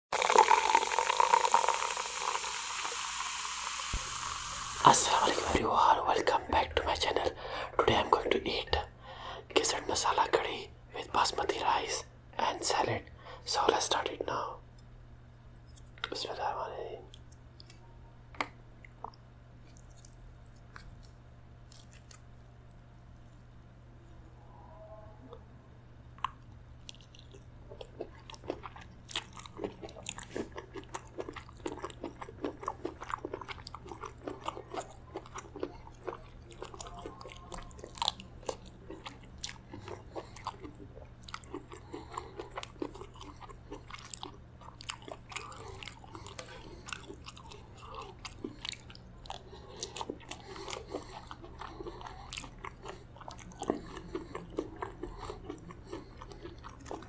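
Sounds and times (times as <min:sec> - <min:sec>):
person chewing: 0:00.2 - 0:08.9, 0:17.1 - 0:17.8, 0:18.4 - 0:23.5, 0:26.2 - 0:57.0
steady low hum: 0:03.8 - 0:57.0.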